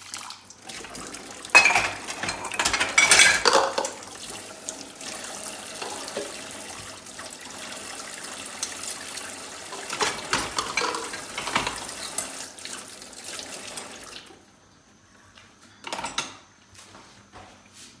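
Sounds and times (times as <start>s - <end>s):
tap water running into sink: 0.0s - 14.4s
crockery clatter: 1.5s - 4.0s, 9.8s - 12.3s
crockery clinking and knocking: 1.5s - 4.0s, 9.9s - 12.3s.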